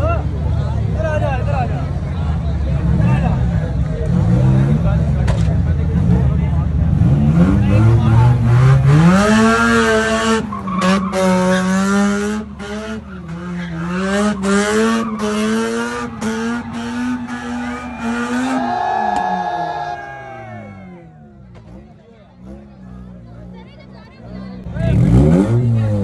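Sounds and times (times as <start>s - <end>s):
rotary engine revving: 4.0s - 19.1s, 24.7s - 26.0s.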